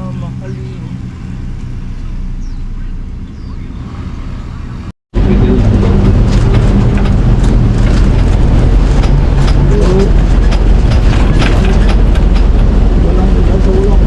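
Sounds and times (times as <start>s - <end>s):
vehicle rumbling: 0.0s - 14.0s
sharp rattling clicks: 6.1s - 13.1s.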